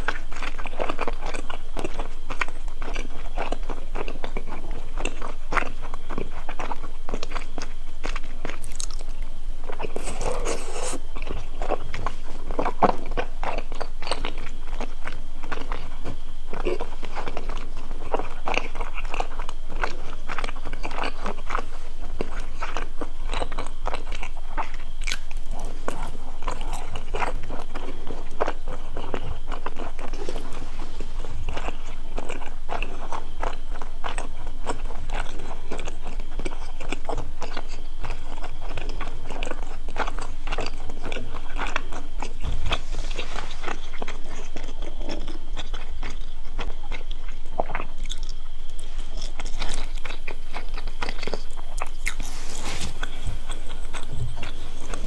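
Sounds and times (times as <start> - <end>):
crunching and chewing crispy food: 0.0 - 55.0.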